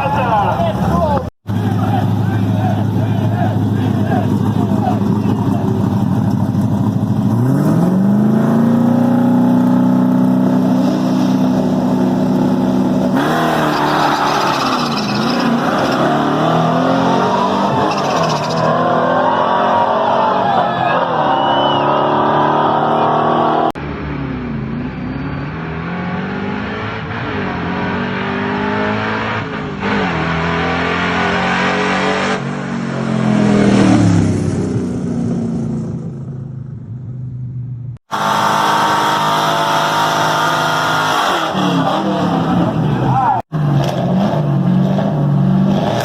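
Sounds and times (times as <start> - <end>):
car engines revving: 0.0 - 46.0.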